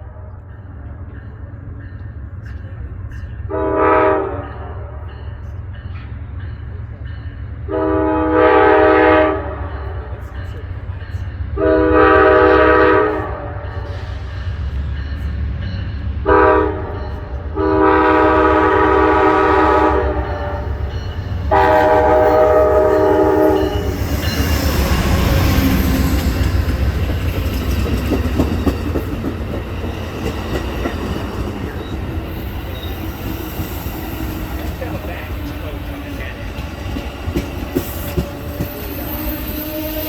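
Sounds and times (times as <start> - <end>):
train passing with rumble: 0.0 - 40.0
train air horn blasts: 3.5 - 5.0, 7.7 - 10.2, 11.6 - 14.2, 16.2 - 26.6.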